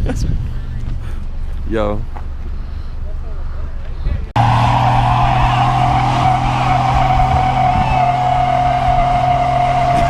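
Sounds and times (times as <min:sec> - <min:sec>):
car engine at high revs: 0:04.4 - 0:10.0
tyres squealing: 0:04.4 - 0:10.0.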